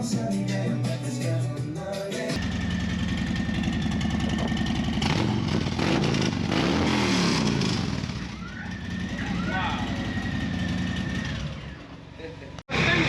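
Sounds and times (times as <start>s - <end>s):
music: 0.0s - 2.4s
street noise: 0.0s - 13.0s
vehicle engine running: 2.1s - 13.0s.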